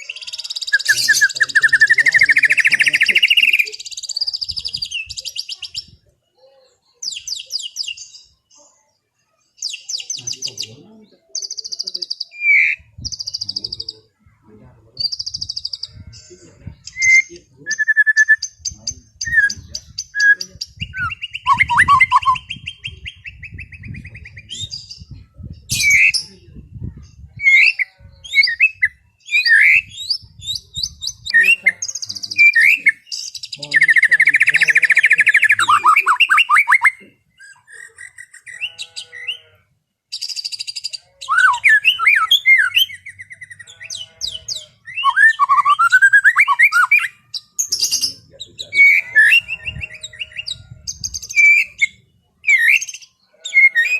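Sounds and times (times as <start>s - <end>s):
bird singing whistles and trills: 11.4s - 14.0s, 16.8s - 26.4s, 27.4s - 39.0s, 40.2s - 53.9s.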